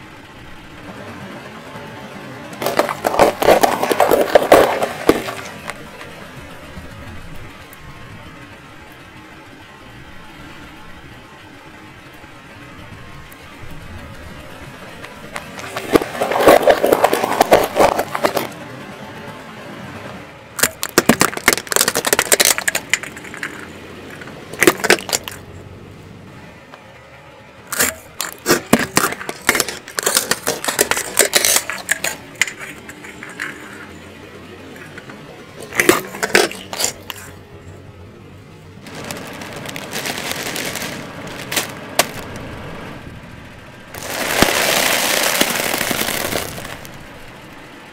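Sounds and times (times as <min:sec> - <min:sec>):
plastic bulbs splitting: 0:02.6 - 0:06.1, 0:15.3 - 0:18.6, 0:20.6 - 0:25.4, 0:27.7 - 0:33.9, 0:34.7 - 0:37.4, 0:38.8 - 0:42.4, 0:43.9 - 0:47.0
tyre crushing objects cracking: 0:02.6 - 0:06.1, 0:15.3 - 0:18.6, 0:20.6 - 0:25.4, 0:27.7 - 0:33.9, 0:34.7 - 0:37.4, 0:38.8 - 0:42.4, 0:44.0 - 0:47.0.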